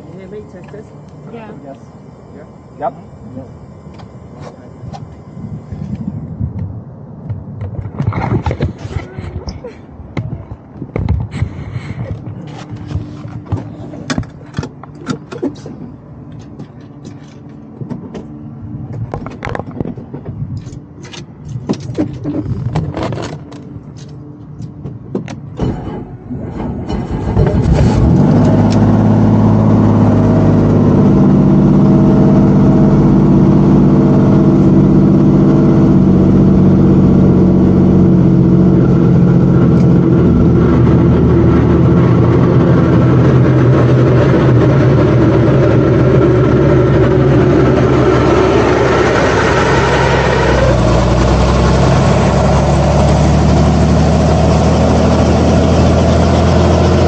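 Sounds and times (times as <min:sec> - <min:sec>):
helicopter engine drone: 0:00.0 - 0:57.0.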